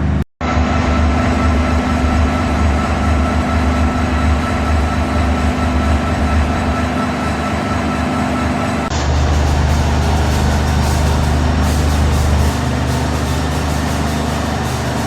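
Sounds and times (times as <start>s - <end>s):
steady humming tones: 0.0s - 15.0s
train rumbling on track: 0.0s - 15.0s.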